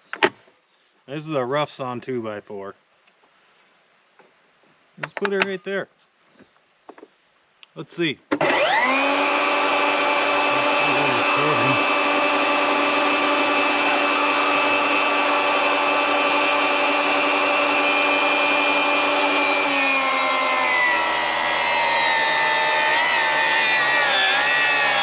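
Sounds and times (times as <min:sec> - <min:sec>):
table saw ripping wood: 0:08.4 - 0:25.0.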